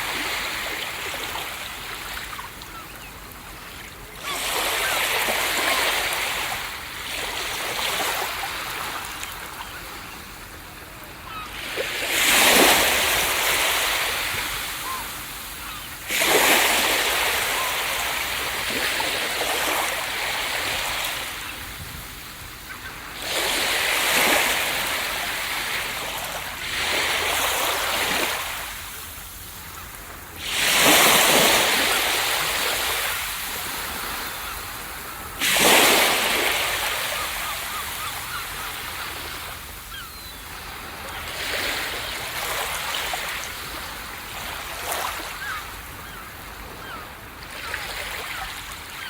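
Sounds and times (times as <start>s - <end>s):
ocean surf breaking: 30.4s - 38.1s.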